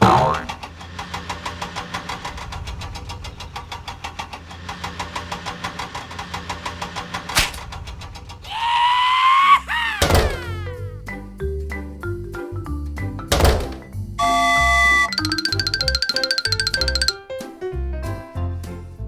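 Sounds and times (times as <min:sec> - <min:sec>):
rising horn-like tone: 0:14.2 - 0:15.1
cartoon engine putt-putt: 0:14.2 - 0:17.1.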